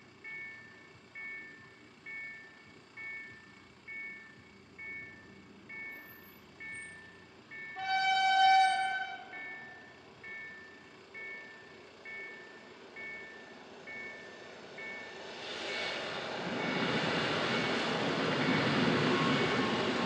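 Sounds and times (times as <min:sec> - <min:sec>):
train horn: 0:07.8 - 0:09.8
level crossing bell ringing: 0:08.8 - 0:10.0.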